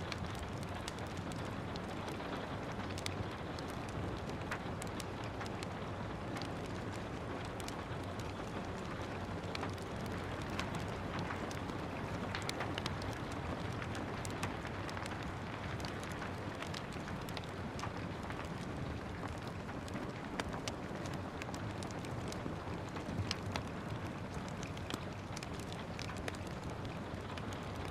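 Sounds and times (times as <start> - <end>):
steady rain hiss: 0.0 - 27.9
wood fire crackling: 0.0 - 27.9.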